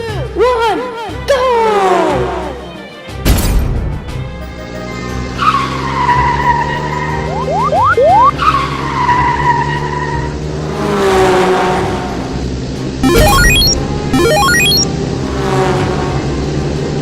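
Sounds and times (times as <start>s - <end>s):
engine revving: 13.0s - 16.8s.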